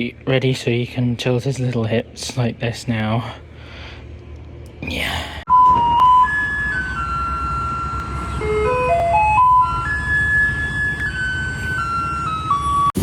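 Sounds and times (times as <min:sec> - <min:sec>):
electronic jingle: 0:05.5 - 0:11.4.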